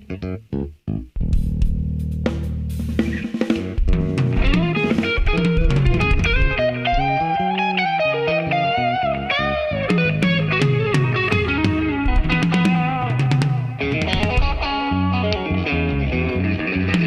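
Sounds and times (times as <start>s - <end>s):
bass guitar: 0.0s - 17.0s
drum kit: 0.9s - 7.3s, 9.8s - 15.1s
electric guitar: 2.8s - 17.0s.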